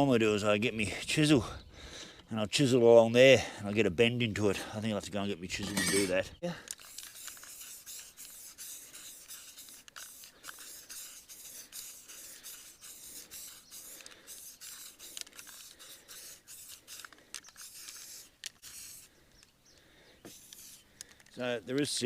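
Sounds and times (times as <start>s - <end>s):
short rubbing strokes: 6.8s - 19.2s, 20.3s - 20.9s.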